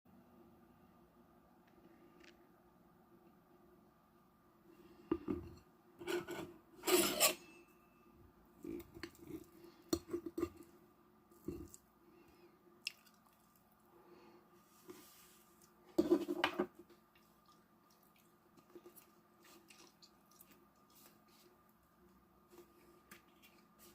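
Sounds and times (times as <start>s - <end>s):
rustling and scraping: 5.4s - 7.4s, 14.6s - 17.0s.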